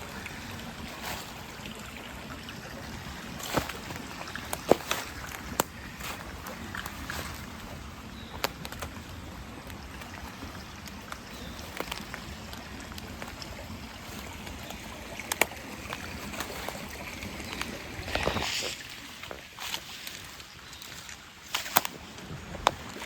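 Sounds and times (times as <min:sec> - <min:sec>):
stream rushing: 0:00.0 - 0:23.0
small clicks and snaps: 0:08.3 - 0:13.5
brushing rustle: 0:16.0 - 0:21.8.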